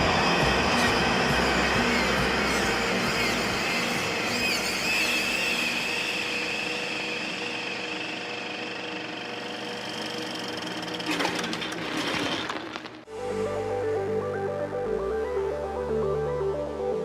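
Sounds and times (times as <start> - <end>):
machinery running with high whine: 0.0 - 17.0
clattering: 11.0 - 13.0.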